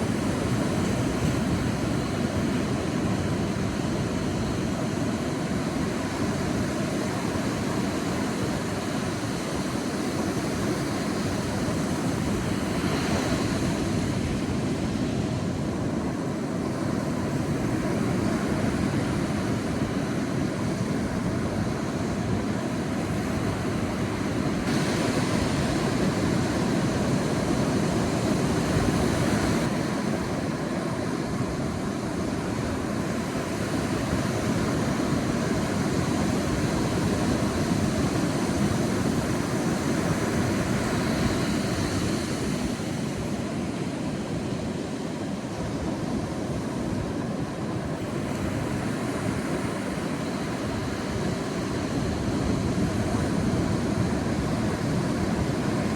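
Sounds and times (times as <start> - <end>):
sea waves breaking on beach: 0.0 - 55.9.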